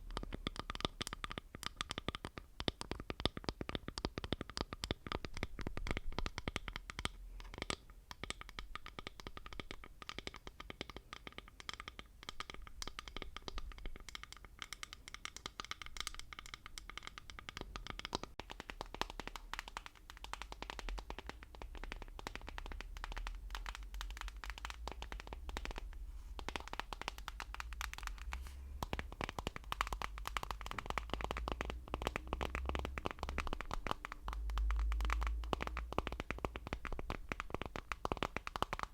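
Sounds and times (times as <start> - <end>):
fast tapping and clicking: 0.0 - 38.9
scratching: 23.0 - 36.8.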